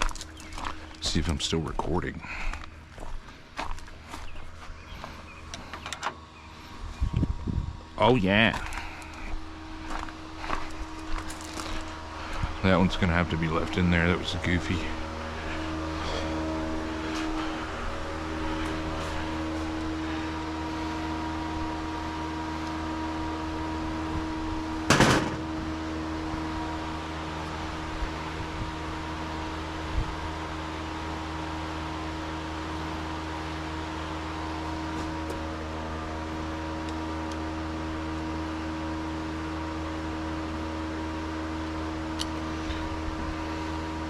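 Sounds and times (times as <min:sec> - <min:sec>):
mechanical hum: 0:00.0 - 0:44.0
loud noisy clatter: 0:24.9 - 0:25.5.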